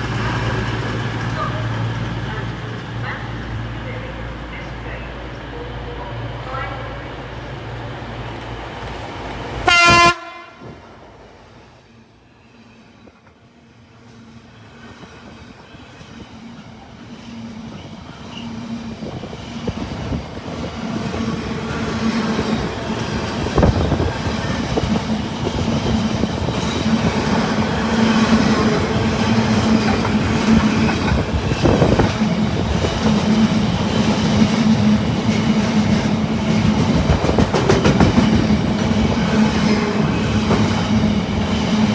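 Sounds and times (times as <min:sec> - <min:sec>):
train low hum: 0:00.0 - 0:41.9
train horn blast: 0:09.6 - 0:10.8
train wheels clattering: 0:19.6 - 0:41.9.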